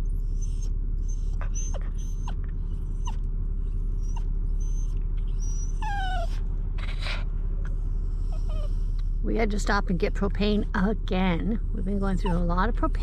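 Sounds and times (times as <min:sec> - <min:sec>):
dog whining and whimpering: 0:00.0 - 0:07.3, 0:08.0 - 0:09.0, 0:11.6 - 0:13.0
vehicle engine hum: 0:00.0 - 0:13.0.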